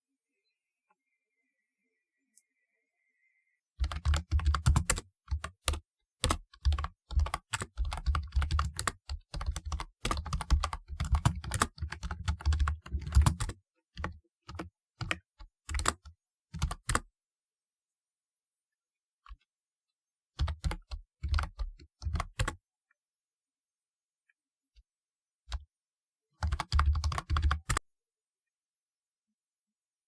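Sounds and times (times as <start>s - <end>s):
keyboard typing: 3.8s - 17.1s, 20.4s - 22.6s, 26.4s - 27.8s.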